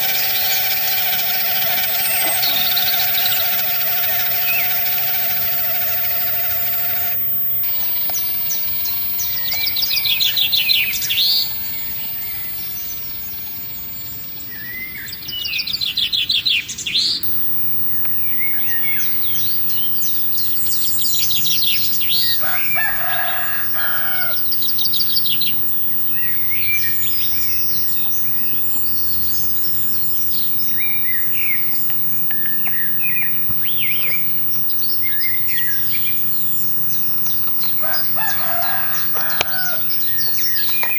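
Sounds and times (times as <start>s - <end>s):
songbirds trilling and chirping: 0.0s - 17.3s, 18.3s - 28.8s, 29.8s - 40.9s
rooster crowing: 22.0s - 24.6s, 37.7s - 40.9s.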